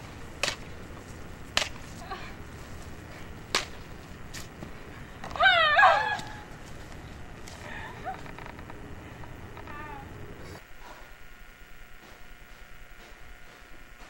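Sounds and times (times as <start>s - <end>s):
high wavering cry: 5.2s - 6.6s.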